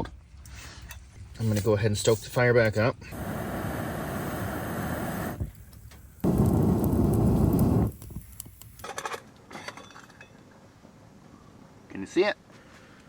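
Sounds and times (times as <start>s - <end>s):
blowing air onto fire: 3.0s - 8.8s.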